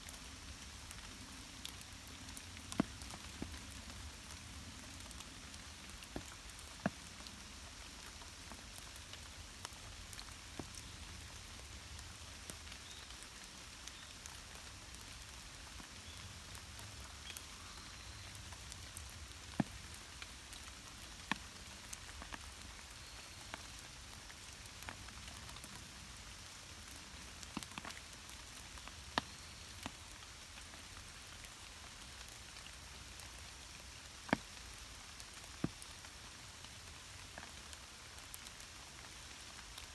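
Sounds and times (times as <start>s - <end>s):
rain falling: 0.0s - 39.9s
single raindrops tapping: 18.3s - 22.8s.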